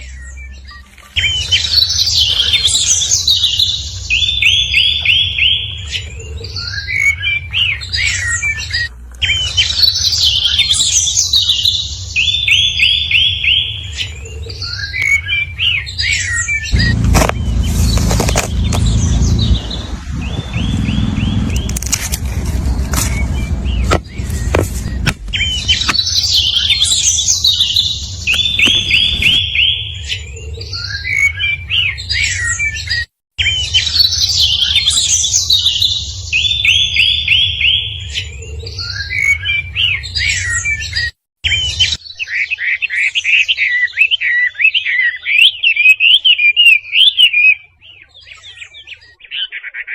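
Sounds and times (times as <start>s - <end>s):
rapid whistled bird notes: 0.0s - 22.0s, 22.9s - 49.6s
birds chirping and singing: 0.0s - 49.9s
low steady rumble: 11.3s - 30.8s.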